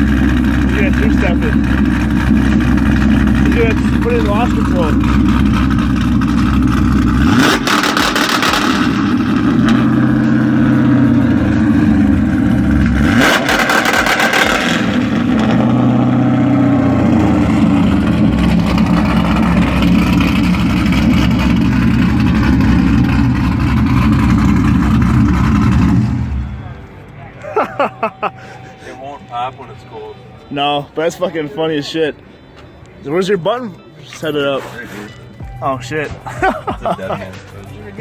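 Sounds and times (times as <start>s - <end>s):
car engine on rev limiter: 0.0s - 27.1s.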